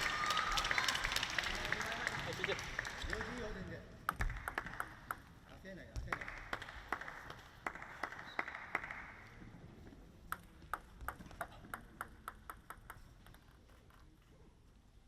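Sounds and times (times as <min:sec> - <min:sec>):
crowd applause: 0:00.0 - 0:03.7
table tennis ball bouncing: 0:04.0 - 0:06.2, 0:10.2 - 0:13.7.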